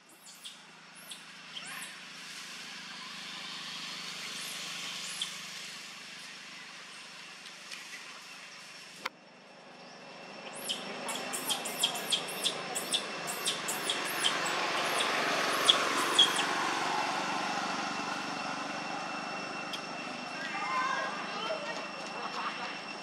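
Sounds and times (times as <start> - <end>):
broad rushing noise: 10.2 - 23.0
bird high falling chirps: 10.5 - 16.6.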